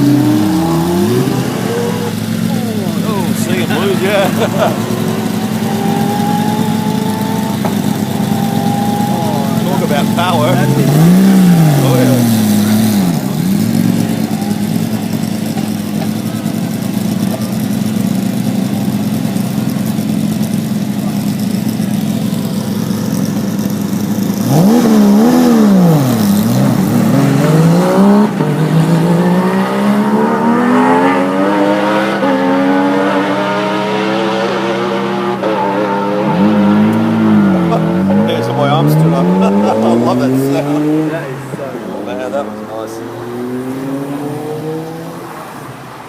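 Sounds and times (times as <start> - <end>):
sports car engine revving: 0.0 - 45.8.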